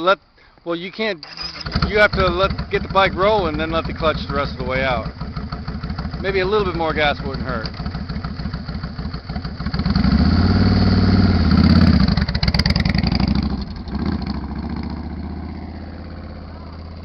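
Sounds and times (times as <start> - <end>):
motorcycle engine revving: 1.2 - 17.0.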